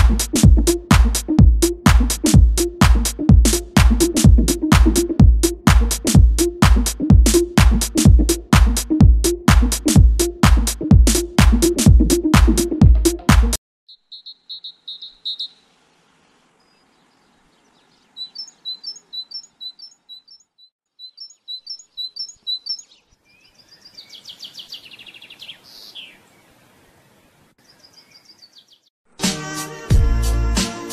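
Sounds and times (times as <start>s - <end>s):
small birds chirping: 13.9s - 28.9s.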